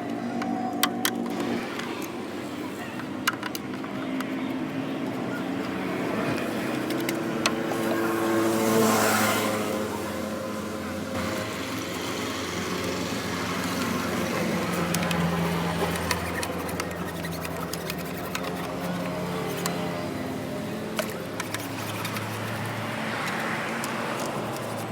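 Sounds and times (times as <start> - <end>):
motor running: 5.4 - 24.9.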